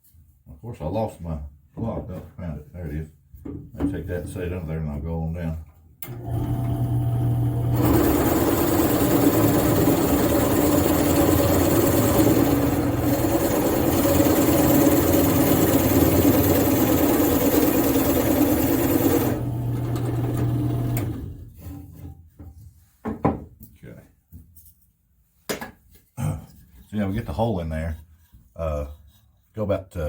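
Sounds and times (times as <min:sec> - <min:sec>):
drill press motor hum: 0:06.0 - 0:21.5
drill bit cutting into wood: 0:07.6 - 0:21.2.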